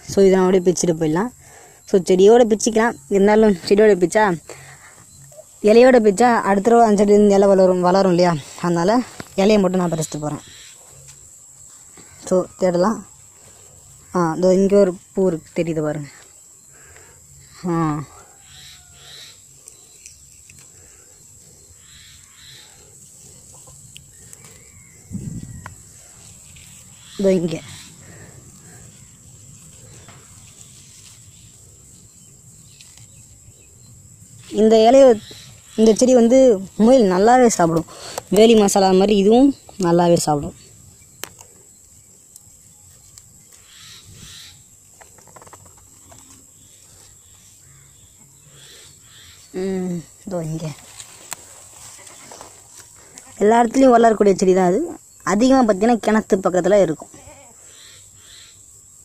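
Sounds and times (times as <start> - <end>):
high insect tone: 0.0 - 59.0
leaves rustling and snapping: 8.6 - 9.6, 19.6 - 21.0, 23.2 - 31.7, 32.6 - 33.5, 50.3 - 53.4
distant animal call: 18.0 - 19.6, 20.8 - 26.3, 43.5 - 44.7, 57.1 - 58.6.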